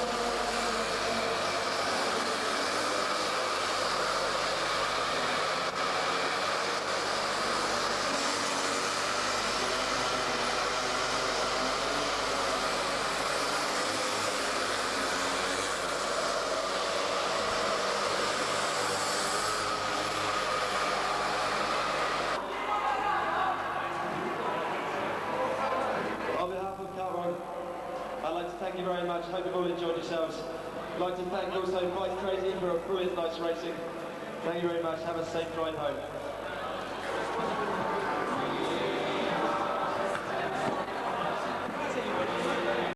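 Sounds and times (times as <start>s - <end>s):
small two-stroke engines buzzing: 0.0s - 22.4s, 36.8s - 42.9s.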